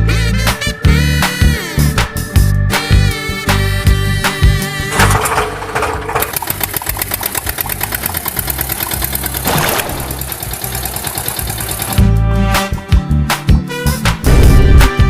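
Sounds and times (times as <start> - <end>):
music: 0.0 - 15.0
engine running: 3.6 - 12.7.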